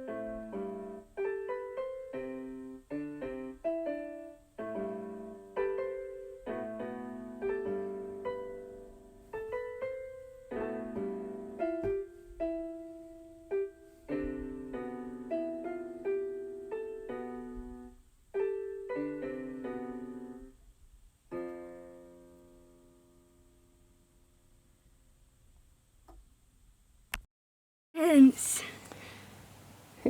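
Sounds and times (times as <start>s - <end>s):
slow piano melody: 0.0s - 20.6s, 21.3s - 24.7s.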